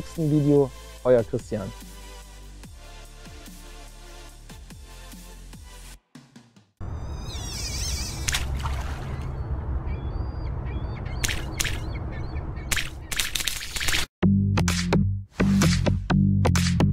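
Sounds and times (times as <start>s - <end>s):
harsh bird cries: 7.1s - 13.2s
steady low rumble: 8.2s - 13.1s.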